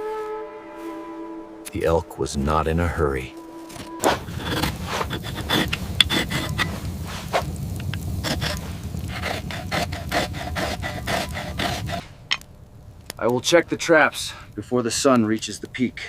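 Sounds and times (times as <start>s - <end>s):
steady low rumble: 1.7s - 14.9s
rough scraping strokes: 2.7s - 12.3s.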